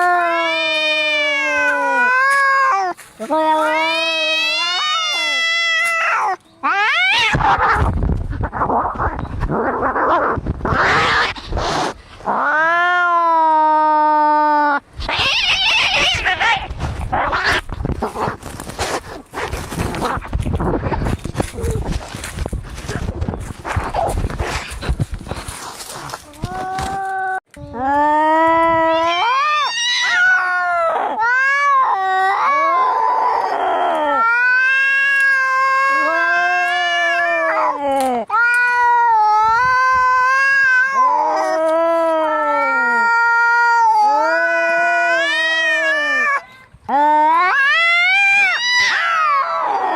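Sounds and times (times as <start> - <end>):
cat yowling: 0.0 - 7.9, 12.3 - 17.7, 26.4 - 49.9
cats hissing: 0.0 - 12.8, 15.0 - 26.9
cat hiss-growl: 9.6 - 12.7.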